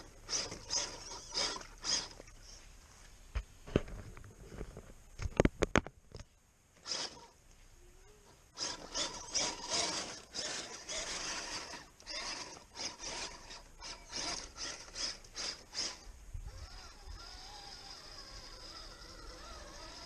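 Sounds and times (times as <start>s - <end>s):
rustling scraping strokes: 8.6s - 16.0s.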